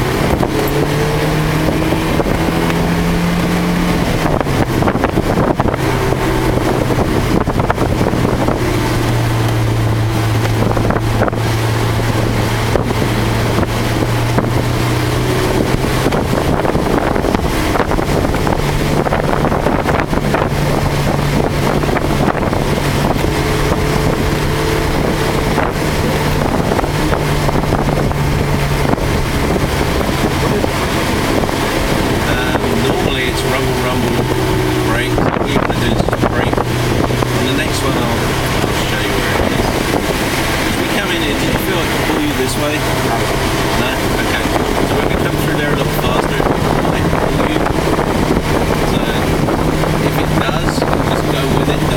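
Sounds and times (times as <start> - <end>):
car engine running: 0.0 - 51.9
tyres and wind hissing: 0.0 - 51.9.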